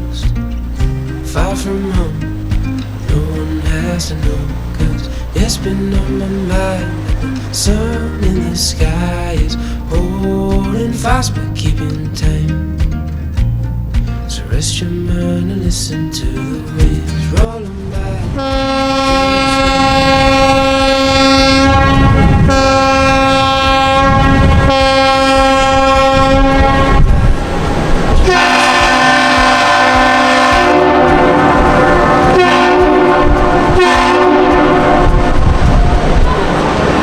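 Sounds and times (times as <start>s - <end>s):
second air horn blasts: 18.4s - 27.2s, 28.2s - 35.4s
air horn blasts: 18.4s - 27.3s, 28.2s - 37.0s.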